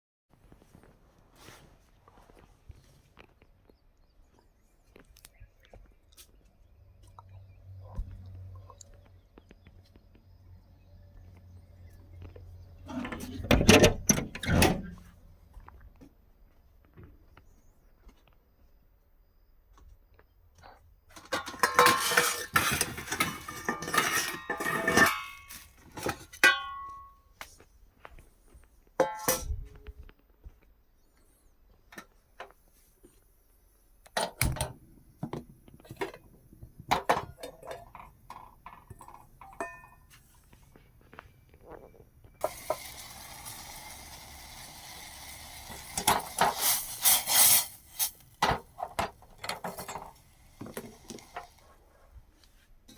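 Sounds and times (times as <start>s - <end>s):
dishes and utensils clattering: 21.1s - 27.1s, 36.9s - 40.2s, 45.7s - 47.4s, 48.4s - 51.6s
steady hiss: 42.4s - 51.9s.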